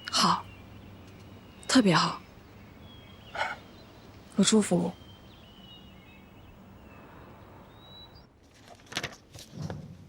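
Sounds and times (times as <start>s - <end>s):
faint birds chirping: 0.0s - 8.9s
outdoor background hiss: 0.0s - 10.0s.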